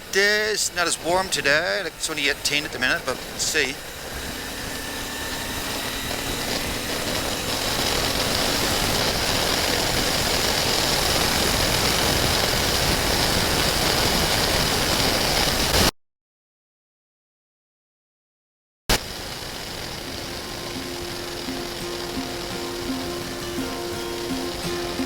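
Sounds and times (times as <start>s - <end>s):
motorcycle engine accelerating: 0.0s - 15.9s, 19.0s - 25.0s
wind noise: 0.0s - 15.9s.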